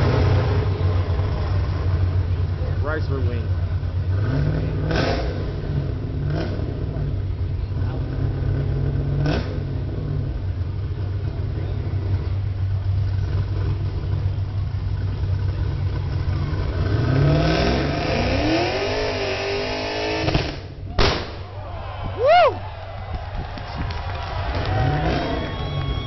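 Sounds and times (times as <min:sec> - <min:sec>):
car engine at high revs: 0:00.0 - 0:20.8, 0:24.5 - 0:26.0
sharp crack: 0:20.2 - 0:21.7.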